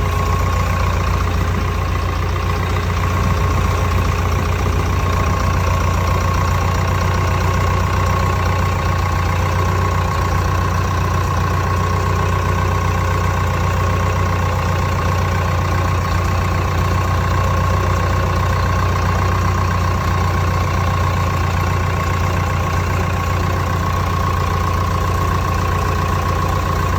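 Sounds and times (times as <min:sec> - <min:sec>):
tractor diesel engine idling: 0:00.0 - 0:26.9.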